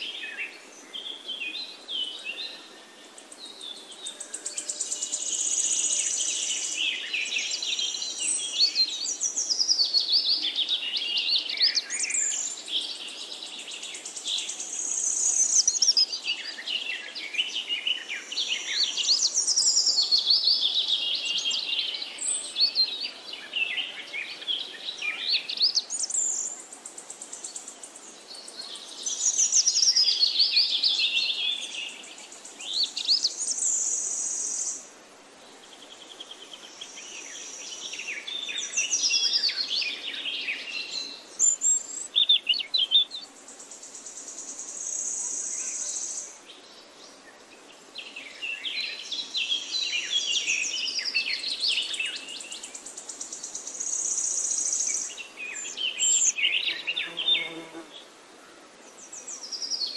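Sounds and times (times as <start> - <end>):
birds chirping and singing: 48.0 - 57.8.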